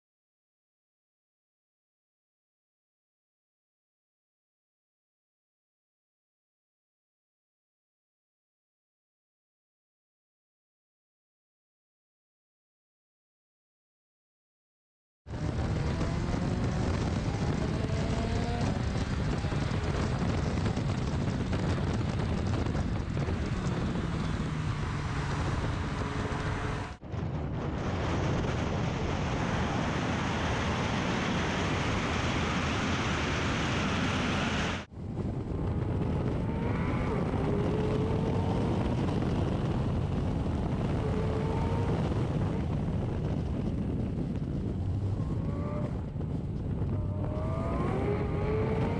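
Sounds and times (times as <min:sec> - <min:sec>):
car engine revving at speed: 0:15.3 - 0:27.0, 0:29.2 - 0:48.9
wind and road noise: 0:15.3 - 0:48.9.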